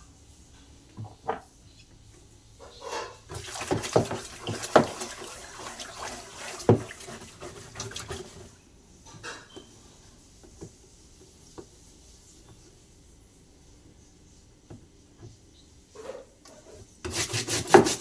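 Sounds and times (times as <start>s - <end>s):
water running and splashing: 3.3s - 8.6s.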